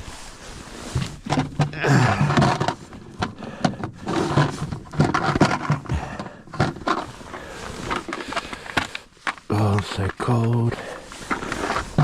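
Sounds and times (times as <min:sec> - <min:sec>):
knocking and scraping in a boat: 0:00.0 - 0:12.0
man grunting with effort: 0:01.7 - 0:02.5.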